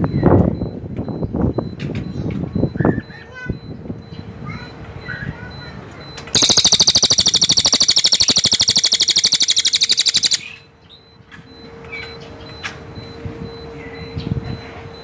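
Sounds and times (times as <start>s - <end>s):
songbird rattling trill: 6.4s - 10.6s.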